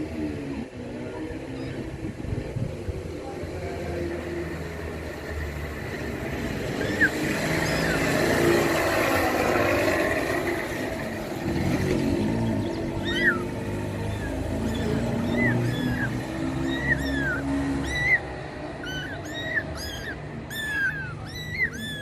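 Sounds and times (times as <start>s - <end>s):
street traffic noise: 0.0s - 22.0s.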